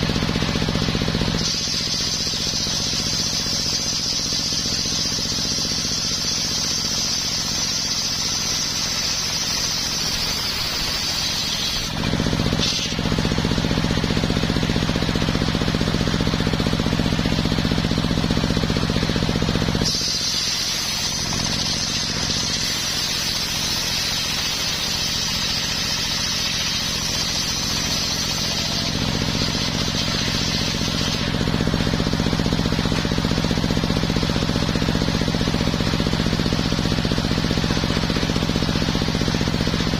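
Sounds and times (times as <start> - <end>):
sawmill machine drone: 0.0 - 39.9
saw blade cutting wood hiss: 0.1 - 14.9, 18.2 - 36.0.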